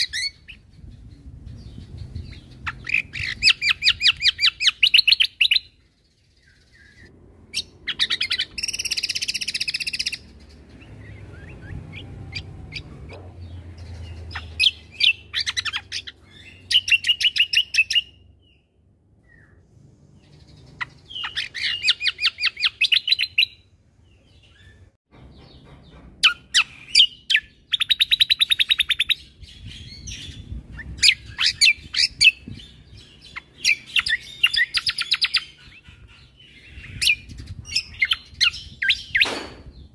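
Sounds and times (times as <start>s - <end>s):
bird singing rapid high notes: 6.4s - 19.6s.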